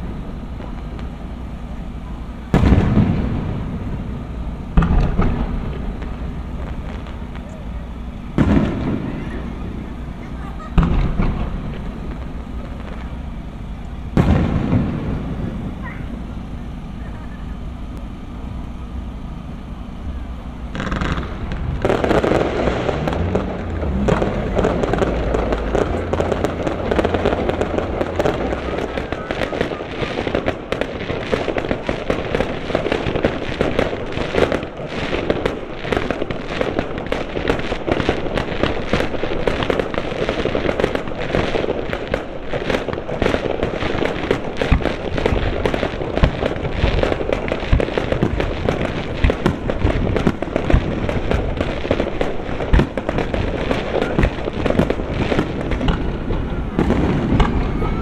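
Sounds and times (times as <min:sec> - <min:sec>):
low rumble: 0:00.0 - 0:34.8
fireworks bursting and crackling: 0:00.0 - 0:58.0.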